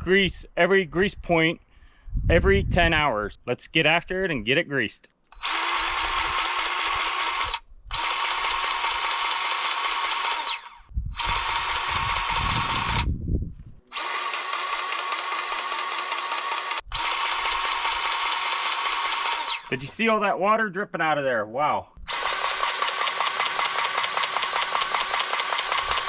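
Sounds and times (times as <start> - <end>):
grease gun motor whirring: 5.4 - 13.1, 13.9 - 19.8, 22.0 - 26.0.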